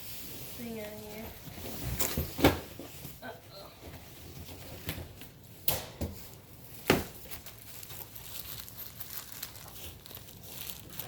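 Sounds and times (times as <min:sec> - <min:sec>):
packaging crinkling and rustling: 0:06.3 - 0:11.0.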